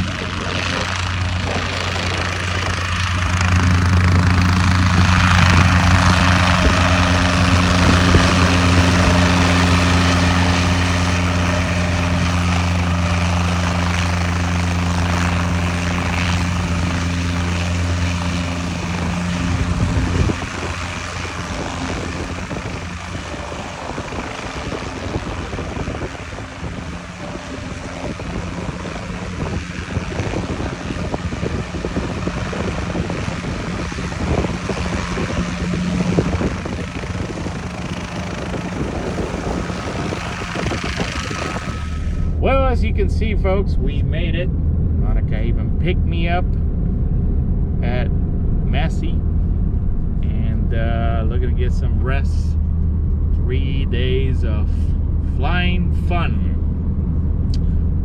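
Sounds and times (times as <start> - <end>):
rough rushing noise: 0.0 - 43.1
helicopter engine and rotors droning: 0.0 - 58.0.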